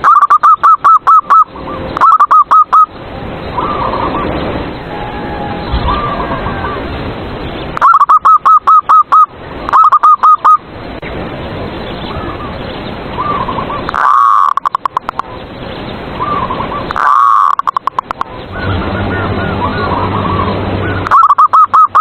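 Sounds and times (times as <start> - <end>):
faint doves cooing: 3.6 - 7.0
dove cooing with rattle: 20.9 - 22.0.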